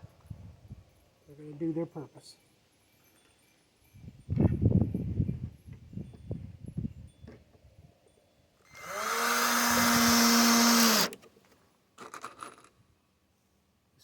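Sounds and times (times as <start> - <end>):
power drill driving a screw: 8.7 - 11.2.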